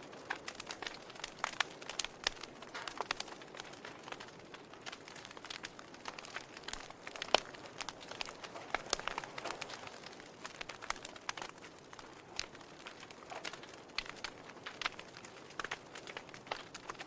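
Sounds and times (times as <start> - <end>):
soft fire hiss: 0.0 - 17.0
wood fire crackling and popping: 0.0 - 17.0.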